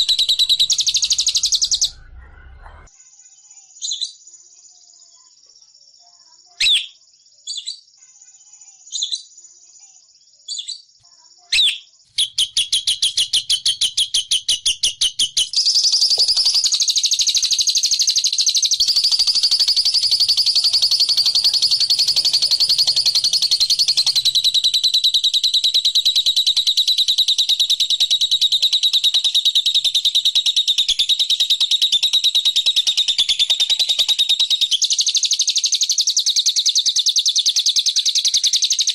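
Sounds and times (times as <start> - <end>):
lovebird chirping and trilling: 0.0 - 2.9, 11.5 - 38.9.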